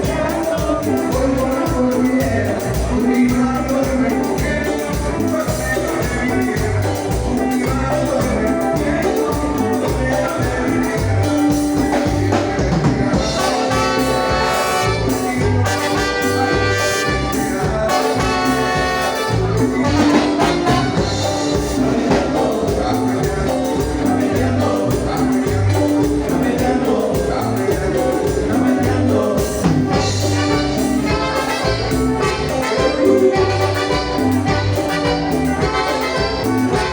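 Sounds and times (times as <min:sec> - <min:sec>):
latin dance music with brass: 0:00.0 - 0:36.9.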